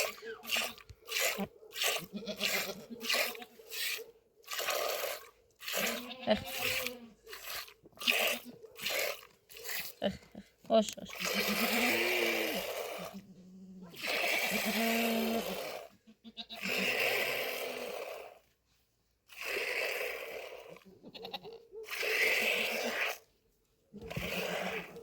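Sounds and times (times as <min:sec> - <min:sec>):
goats bleating: 0:02.0 - 0:03.0, 0:05.7 - 0:07.2, 0:11.2 - 0:12.6, 0:13.8 - 0:16.9, 0:21.0 - 0:21.6.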